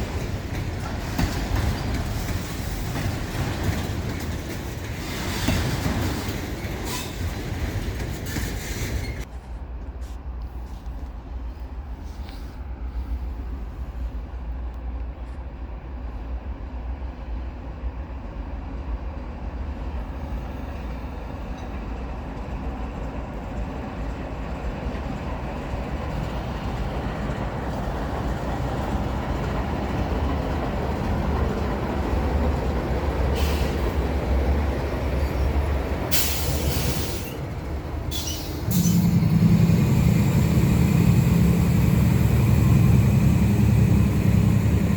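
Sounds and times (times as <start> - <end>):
diesel locomotive engine hum: 0.0 - 44.9
train wheels rumbling: 0.0 - 44.9.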